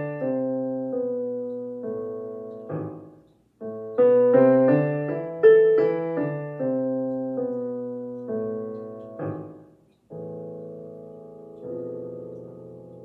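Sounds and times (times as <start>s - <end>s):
solo piano chords: 0.0s - 13.0s.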